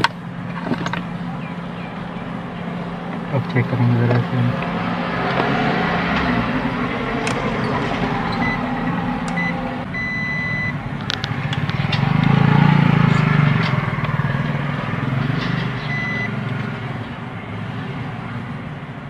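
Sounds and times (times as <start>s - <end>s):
multimeter buzzer beeping: 9.4s - 10.7s.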